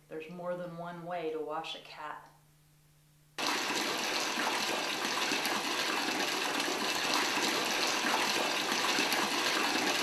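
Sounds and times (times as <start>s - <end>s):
tap water running hard: 3.4s - 10.0s.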